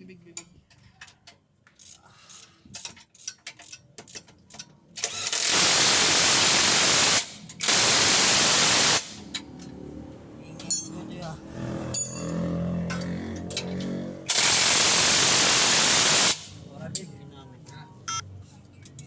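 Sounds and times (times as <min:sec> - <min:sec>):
pneumatic air tool bursts: 0:05.0 - 0:09.4, 0:14.3 - 0:16.6
metal tool clinks: 0:12.0 - 0:12.4.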